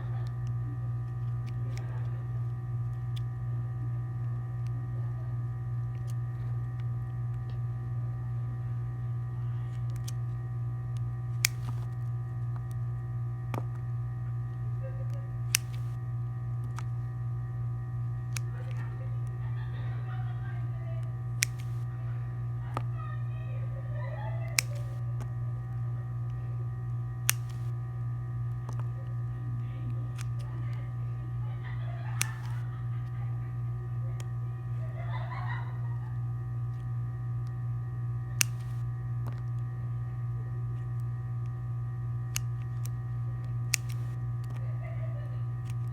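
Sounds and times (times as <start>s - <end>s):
faint steady tones: 0.0s - 45.9s
low electrical hum: 0.0s - 45.9s
sharp clicks: 0.2s - 3.4s, 9.7s - 13.9s, 15.0s - 16.0s, 16.6s - 17.1s, 18.2s - 19.8s, 21.0s - 22.0s, 24.5s - 26.4s, 27.2s - 27.8s, 29.8s - 31.0s, 32.0s - 33.2s, 38.4s - 39.7s, 42.3s - 44.6s, 45.6s - 45.9s.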